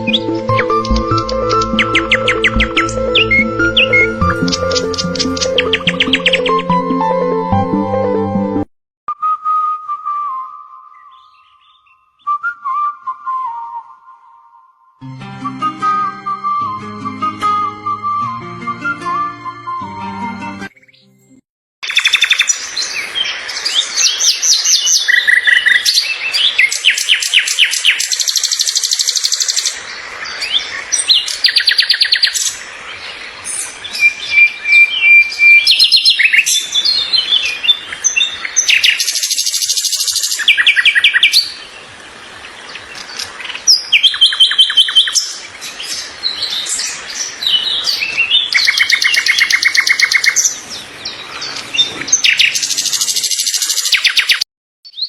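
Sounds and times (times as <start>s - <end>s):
birds singing: 0.0s - 6.6s, 10.9s - 12.4s, 21.8s - 55.0s.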